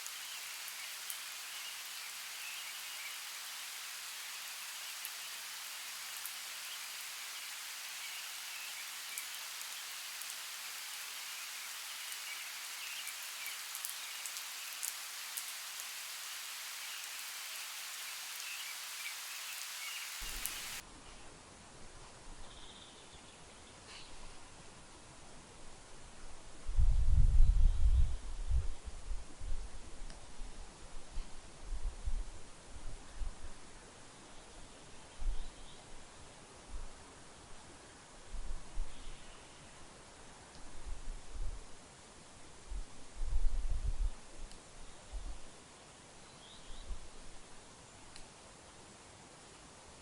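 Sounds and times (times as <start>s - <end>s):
rain falling: 0.0s - 20.8s.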